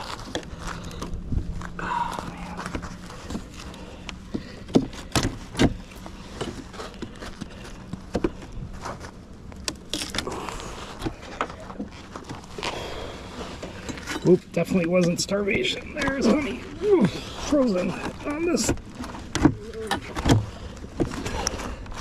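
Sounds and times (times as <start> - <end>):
hive tool prying wooden hive: 4.4 - 5.8.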